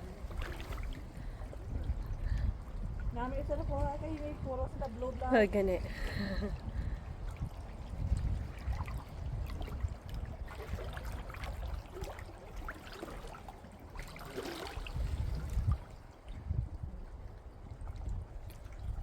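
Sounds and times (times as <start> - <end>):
water sloshing in shallows: 0.0 - 19.0
wind on microphone: 0.0 - 19.0.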